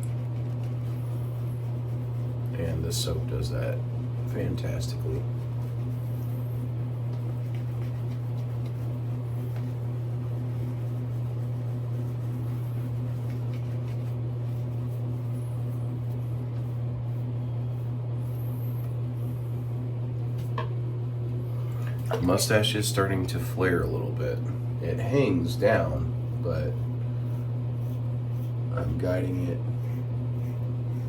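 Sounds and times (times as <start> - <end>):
low background hum: 0.0 - 31.0.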